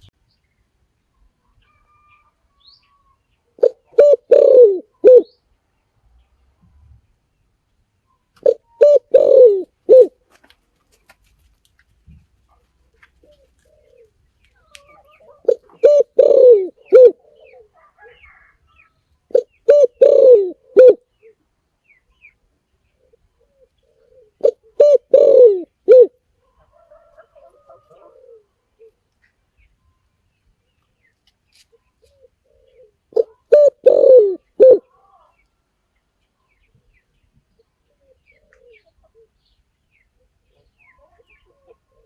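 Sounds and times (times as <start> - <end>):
dove cooing: 3.6 - 5.4, 8.4 - 10.2, 13.1 - 18.6, 19.3 - 21.4, 22.9 - 29.1, 32.0 - 35.4, 37.8 - 39.4, 40.2 - 42.0
faint bird calls: 12.5 - 30.1, 31.5 - 35.6, 36.4 - 42.0.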